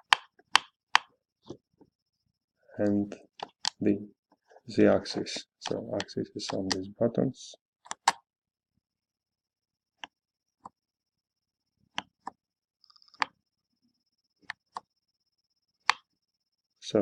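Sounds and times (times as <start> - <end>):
controller buttons clicking: 5.6 - 6.9, 7.8 - 8.2.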